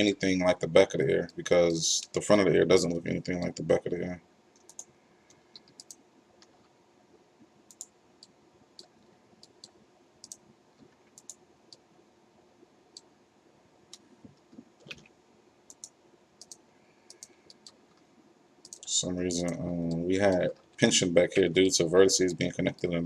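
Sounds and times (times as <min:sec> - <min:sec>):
low room hum: 0:00.0 - 0:23.0
mouse and keyboard clicking: 0:04.6 - 0:04.9, 0:05.5 - 0:06.6, 0:07.7 - 0:10.4, 0:11.1 - 0:11.8, 0:15.7 - 0:18.0.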